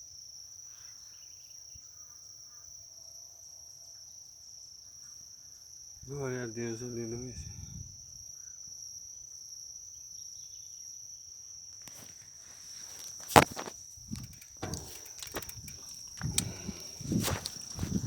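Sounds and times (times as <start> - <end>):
knocks and crunches: 12.8 - 18.0.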